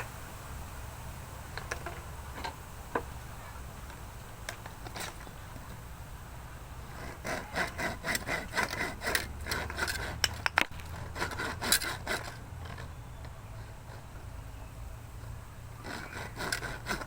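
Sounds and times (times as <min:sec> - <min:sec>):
scraping on a hard surface: 0:04.5 - 0:05.8, 0:06.8 - 0:17.0.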